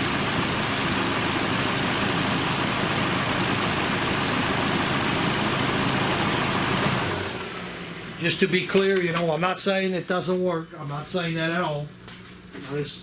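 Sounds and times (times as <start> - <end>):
car engine idling hum: 0.0 - 8.5.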